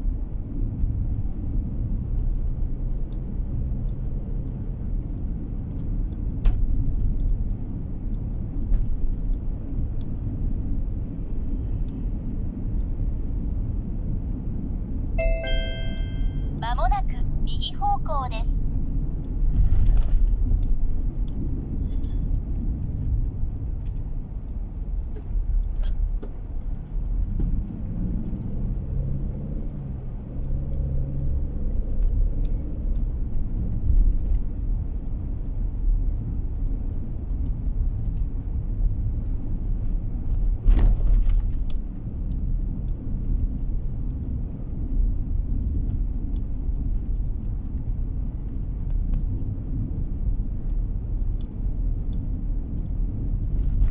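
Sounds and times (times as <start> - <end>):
engine and road noise: 0.0 - 53.9.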